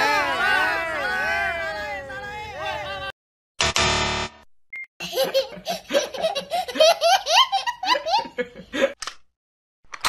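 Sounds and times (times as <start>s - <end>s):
buzzing tone: 3.6s - 4.5s
baby laughing: 5.0s - 8.3s.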